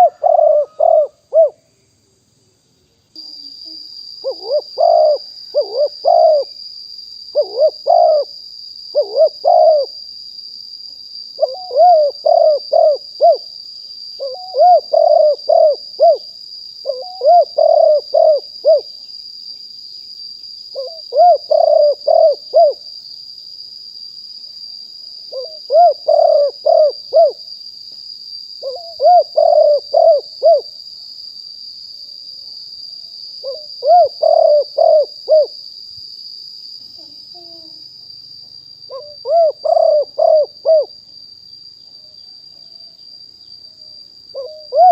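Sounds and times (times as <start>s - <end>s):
dove cooing: 0.0s - 1.6s, 4.2s - 6.5s, 7.3s - 8.3s, 8.9s - 10.0s, 11.4s - 13.5s, 14.2s - 18.9s, 20.8s - 22.8s, 25.3s - 27.4s, 28.6s - 30.7s, 33.4s - 35.6s, 38.9s - 40.9s, 44.3s - 44.9s.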